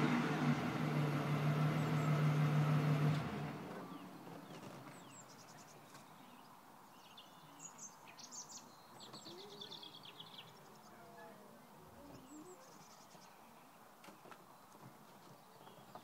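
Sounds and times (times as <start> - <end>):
birds chirping and trilling: 3.8 - 11.2, 12.0 - 16.0.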